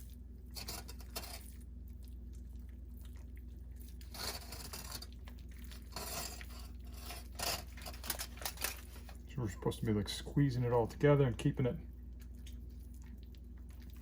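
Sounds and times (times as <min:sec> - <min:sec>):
sausage meat squishing by hand: 0:00.0 - 0:14.0
steady low hum: 0:00.0 - 0:14.0.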